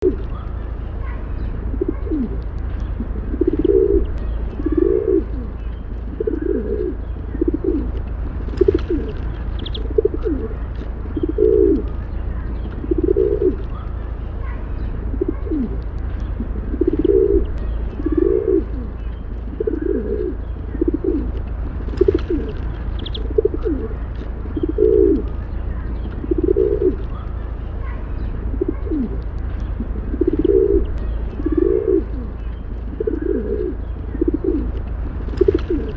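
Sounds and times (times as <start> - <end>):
faint bird chirps: 0.0 - 8.0, 22.0 - 34.7
low hum: 0.0 - 35.9
pigeons cooing: 0.0 - 35.9.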